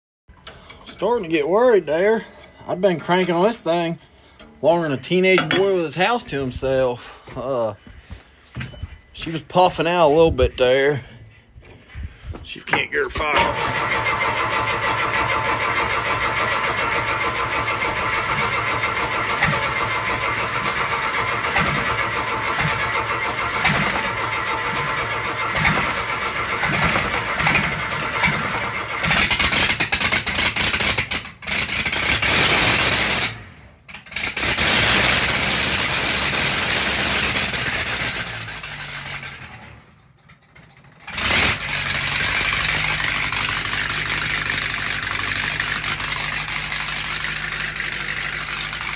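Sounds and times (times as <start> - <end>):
starter motor cranking: 13.1 - 33.4, 41.0 - 48.9
diesel engine running: 13.1 - 33.6, 34.2 - 48.9.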